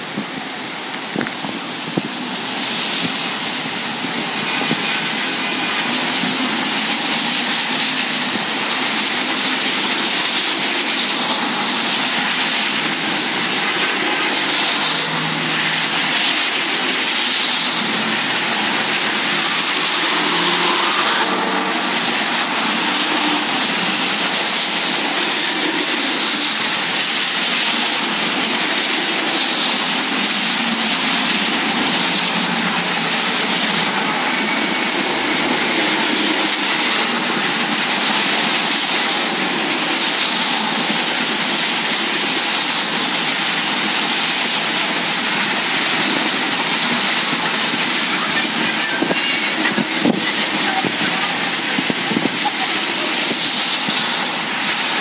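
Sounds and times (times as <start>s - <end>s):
heavy rain and wind: 0.0s - 55.0s.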